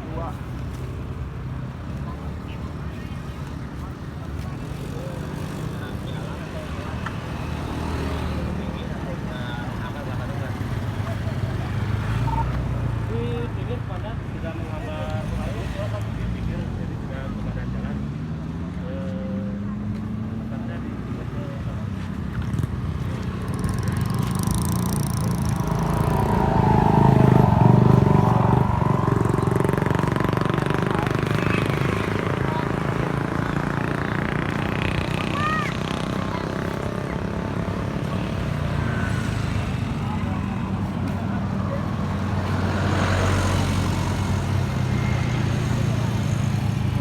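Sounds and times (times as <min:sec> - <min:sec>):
heavy vehicle engine humming: 0:22.6 - 0:47.0
rush of noise: 0:23.9 - 0:40.0.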